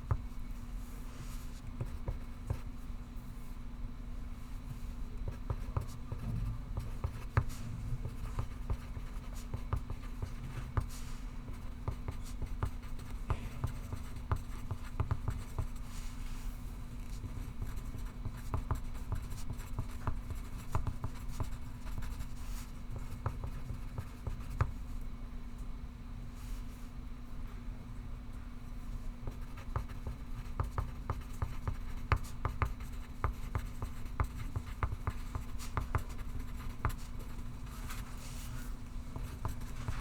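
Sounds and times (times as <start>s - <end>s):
low room hum: 0.0s - 40.0s
pencil writing on paper: 6.8s - 15.9s, 17.2s - 24.7s, 29.3s - 38.0s, 39.1s - 40.0s.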